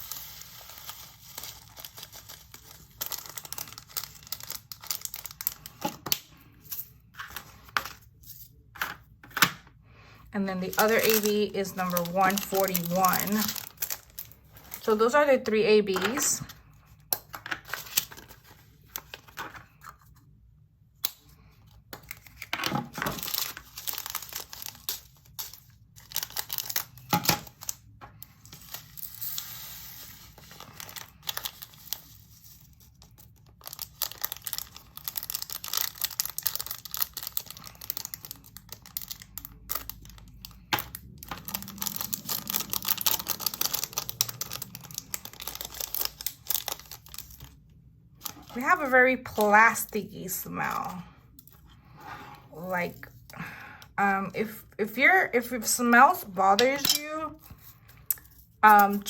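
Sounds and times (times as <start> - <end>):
plastic bags rustling: 0.0 - 8.4, 10.4 - 16.8, 22.2 - 47.6.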